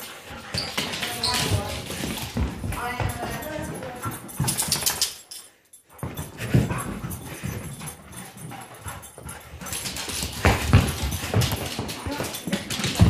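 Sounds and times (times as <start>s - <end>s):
dog paws scuffling on floor: 0.0s - 13.0s
dog noises: 5.9s - 12.5s.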